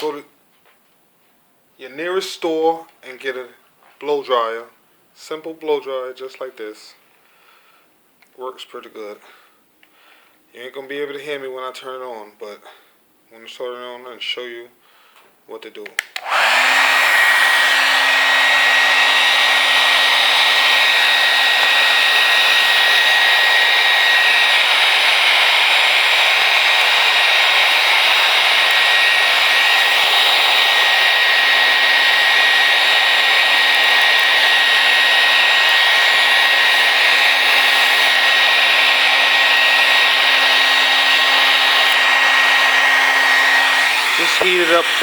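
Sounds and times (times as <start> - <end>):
hair dryer blowing: 16.0 - 45.0.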